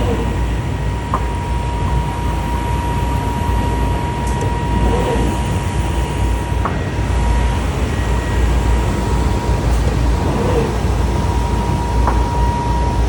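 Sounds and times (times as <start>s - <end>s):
machine rumbling drone: 0.0s - 13.0s
thin high whine: 0.0s - 13.0s.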